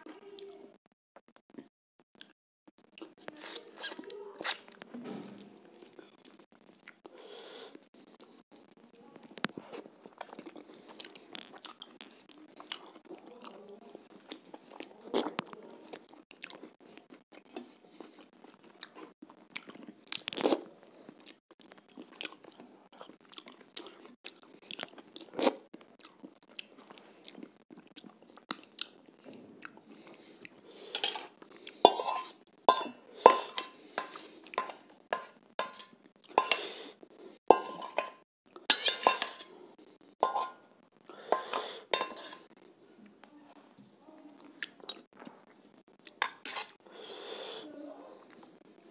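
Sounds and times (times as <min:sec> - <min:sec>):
chewing and crunching: 0:02.2 - 0:07.2, 0:09.2 - 0:42.7
steel spoon knocking on steel pot: 0:31.9 - 0:36.7, 0:37.5 - 0:39.4, 0:40.2 - 0:40.6, 0:41.4 - 0:42.4.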